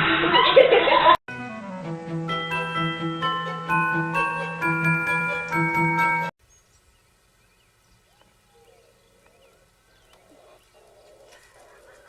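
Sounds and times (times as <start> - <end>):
xylophone-like music: 2.2 - 6.3.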